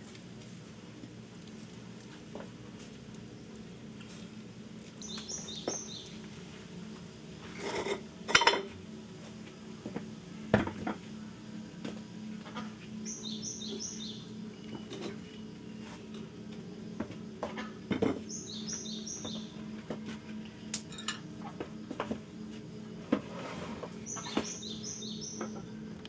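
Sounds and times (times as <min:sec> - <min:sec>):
small bird chirping: 0:05.0 - 0:06.2, 0:13.0 - 0:14.4, 0:18.3 - 0:19.5, 0:24.0 - 0:25.6
dishes and utensils clattering: 0:07.6 - 0:08.7, 0:20.9 - 0:21.2.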